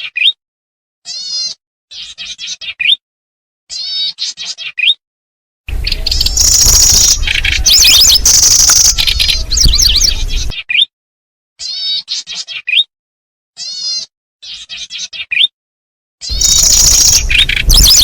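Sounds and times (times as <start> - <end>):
steady low rumble: 5.7 - 10.5, 16.3 - 18.0
songbird chirps and trills: 5.7 - 10.9, 16.3 - 18.0.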